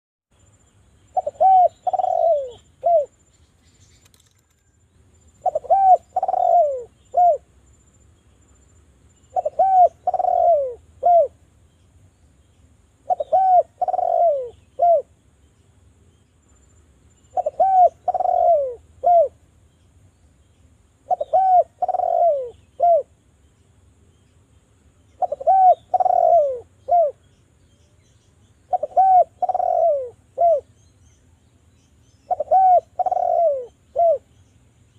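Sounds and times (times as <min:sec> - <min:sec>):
dove cooing: 0:01.1 - 0:03.2, 0:05.4 - 0:07.5, 0:09.3 - 0:11.4, 0:13.0 - 0:15.1, 0:17.3 - 0:19.4, 0:21.0 - 0:23.1, 0:25.2 - 0:27.3, 0:28.7 - 0:30.7, 0:32.3 - 0:34.3.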